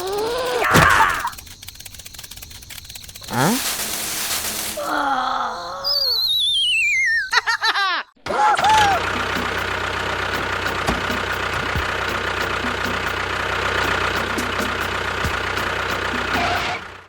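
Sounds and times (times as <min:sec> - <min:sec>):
small motor humming: 0:00.0 - 0:05.0, 0:09.1 - 0:13.2.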